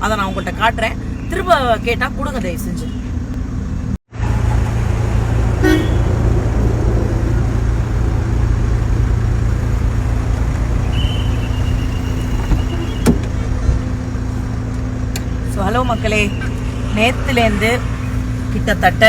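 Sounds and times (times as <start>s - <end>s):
vehicle engine rumbling: 0.0s - 19.0s
short horn toot: 5.6s - 6.1s.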